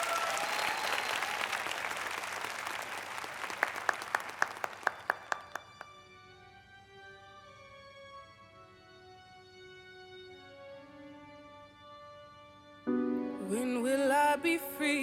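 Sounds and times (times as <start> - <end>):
whoops: 0.0 - 1.8
audience applause: 0.0 - 5.9.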